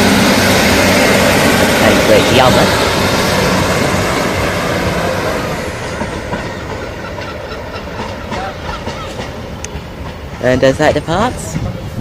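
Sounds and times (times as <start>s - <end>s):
train engine and wheel noise: 0.0s - 12.0s
wheels clicking over rail joints: 5.8s - 11.8s.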